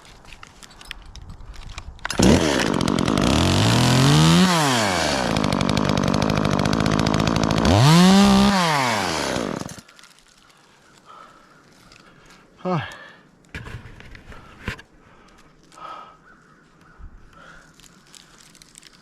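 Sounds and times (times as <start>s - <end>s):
chainsaw revving and cutting: 2.1s - 9.9s.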